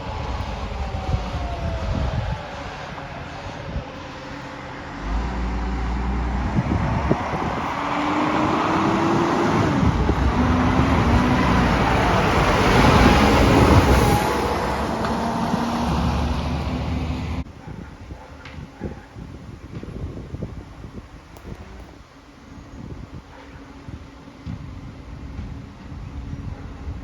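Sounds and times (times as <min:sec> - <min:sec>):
garbage truck driving past: 0:00.0 - 0:17.5.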